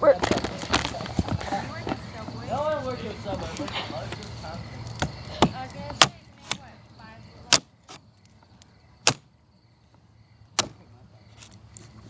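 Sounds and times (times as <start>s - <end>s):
axe chopping wood: 5.0s - 6.6s, 7.5s - 8.0s, 9.0s - 9.3s, 10.6s - 10.8s.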